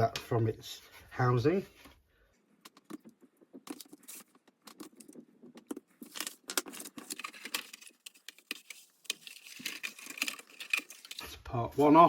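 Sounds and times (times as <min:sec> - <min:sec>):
plywood tabs clicking and crackling: 0:03.7 - 0:11.2.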